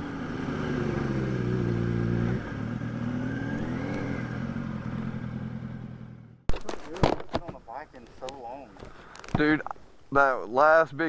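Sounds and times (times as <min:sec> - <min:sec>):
motorcycle engine revving: 0:00.0 - 0:06.5.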